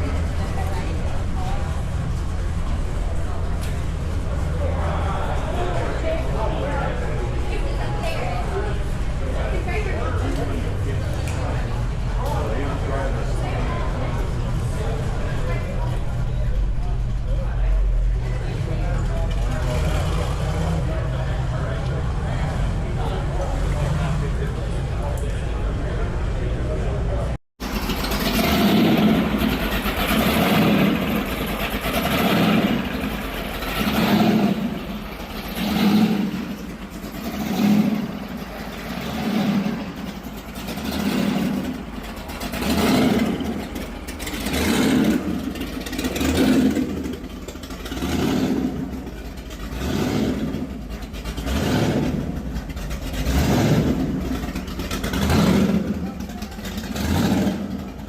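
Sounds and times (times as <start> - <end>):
car engine revving: 0.0 - 26.5, 27.6 - 58.0.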